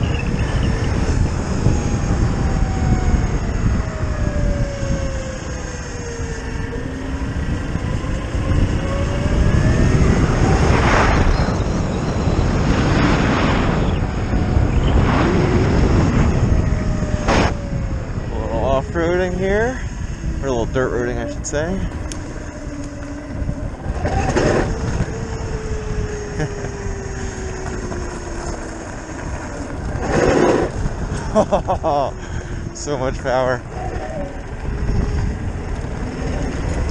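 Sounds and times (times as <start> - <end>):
electric motor whine: 0.0 - 36.9
wind and road noise: 0.0 - 36.9
tyre noise on dirt: 23.9 - 25.6, 27.4 - 31.5.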